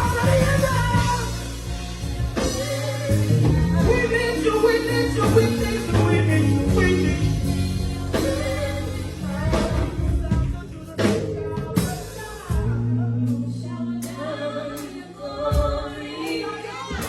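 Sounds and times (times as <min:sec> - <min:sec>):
sustained low chords: 0:00.0 - 0:11.8
gospel singing over a band: 0:00.0 - 0:17.0.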